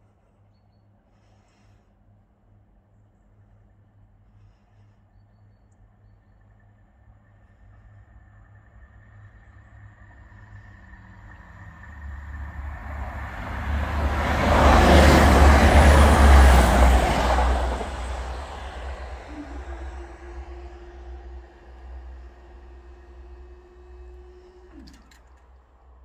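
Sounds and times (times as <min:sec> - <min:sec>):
diesel train passing: 0:06.3 - 0:26.0.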